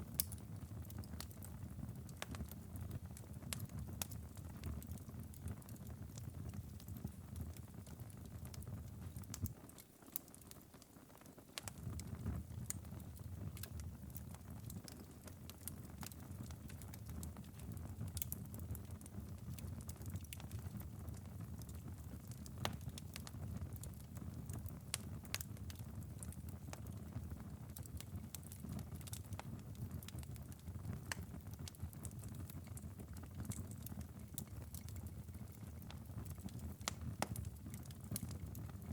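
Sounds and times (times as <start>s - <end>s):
sharp ticks and pops: 0.2s - 1.2s, 11.6s - 21.8s, 30.9s - 38.8s.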